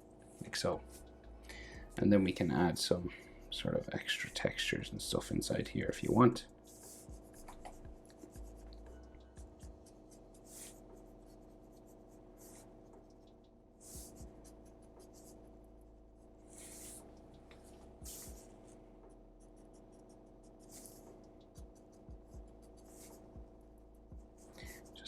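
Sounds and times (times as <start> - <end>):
steady low hum: 0.0 - 25.0
pencil scratching on paper: 6.6 - 15.6, 16.2 - 25.0.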